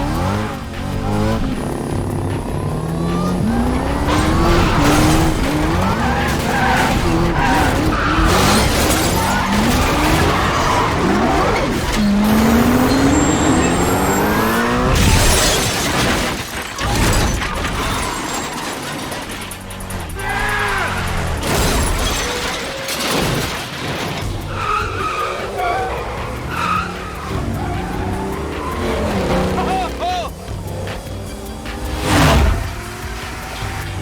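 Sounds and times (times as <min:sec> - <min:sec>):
sports car engines accelerating: 0:00.0 - 0:15.6, 0:24.3 - 0:34.0
tyre screeches: 0:03.2 - 0:15.2, 0:16.8 - 0:23.3, 0:24.3 - 0:30.8.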